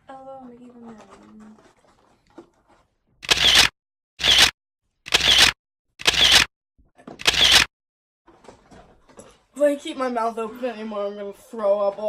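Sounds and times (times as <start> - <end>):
camera shutter clicking: 3.2 - 4.5, 5.1 - 6.5, 7.2 - 7.7.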